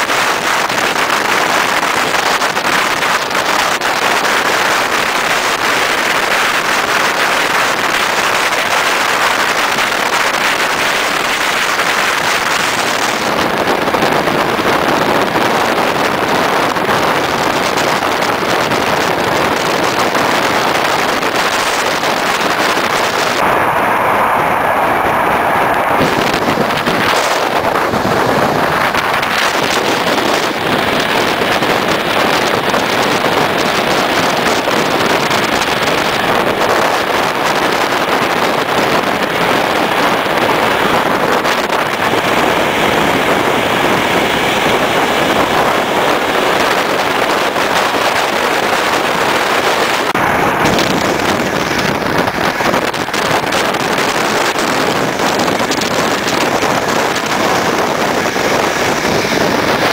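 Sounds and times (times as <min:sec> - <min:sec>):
train wheel and rail noise: 0:00.0 - 0:59.9
wind buffeting microphone: 0:00.0 - 0:59.9.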